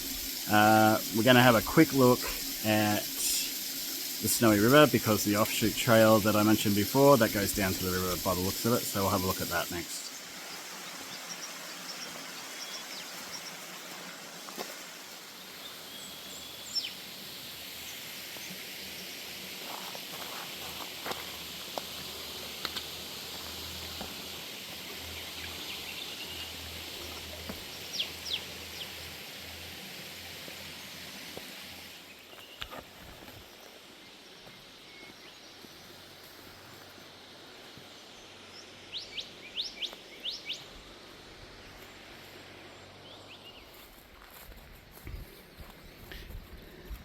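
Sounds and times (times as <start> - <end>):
steady outdoor hiss: 0.0 - 47.0
birds chirping: 4.2 - 14.1, 15.3 - 17.1.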